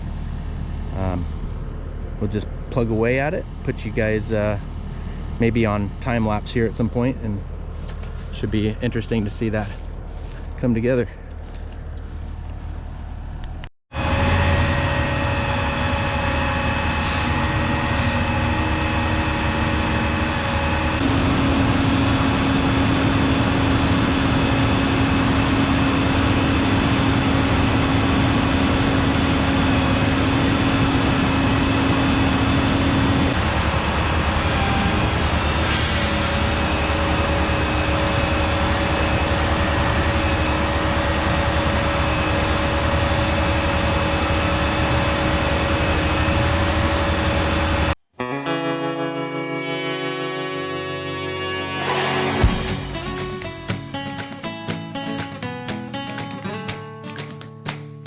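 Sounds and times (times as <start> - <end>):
heavy diesel equipment running: 0.0 - 48.0, 51.8 - 54.0
steady whine: 12.8 - 48.6, 49.7 - 54.3.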